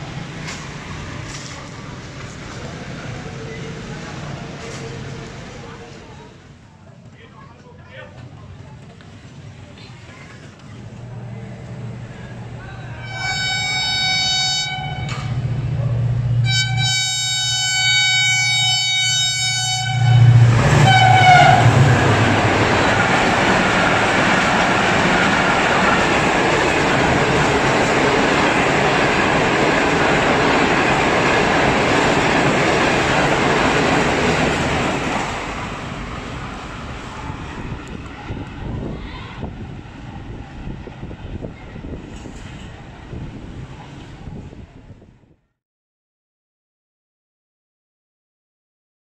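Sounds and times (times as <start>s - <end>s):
train coaches roaring past: 0.0s - 45.1s
train horn blasts: 13.0s - 15.5s, 16.4s - 21.9s
wind buffeting the microphone: 36.7s - 45.4s.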